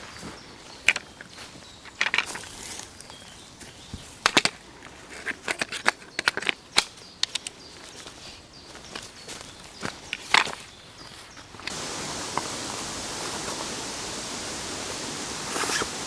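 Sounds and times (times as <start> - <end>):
faint outdoor background: 0.0 - 16.0
tent handling clicks and knocks: 4.2 - 7.6, 15.0 - 16.0.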